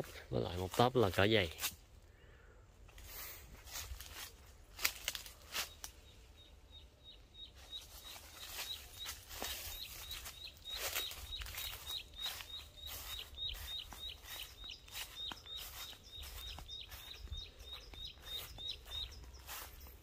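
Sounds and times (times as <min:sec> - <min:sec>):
footsteps in undergrowth: 0:00.0 - 0:01.9, 0:02.8 - 0:06.3, 0:07.2 - 0:20.0
bird chirping: 0:05.1 - 0:20.0.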